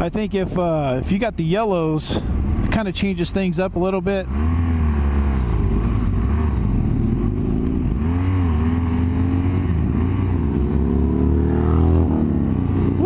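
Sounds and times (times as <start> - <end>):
motorcycle engine accelerating: 4.2 - 13.0.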